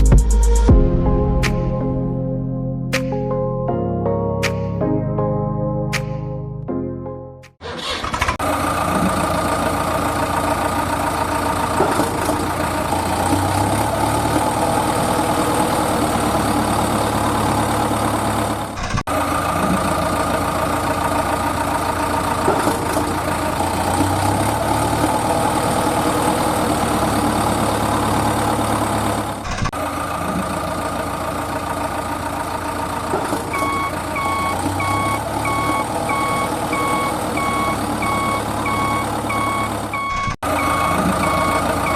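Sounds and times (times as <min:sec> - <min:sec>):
heavy truck engine running: 0:07.6 - 0:41.9
reversing beeps: 0:33.5 - 0:41.9.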